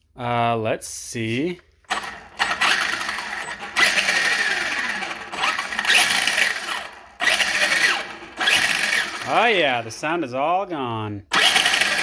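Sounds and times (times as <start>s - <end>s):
electric motor whine: 1.9s - 9.8s, 11.4s - 12.0s
gear noise: 1.9s - 10.0s.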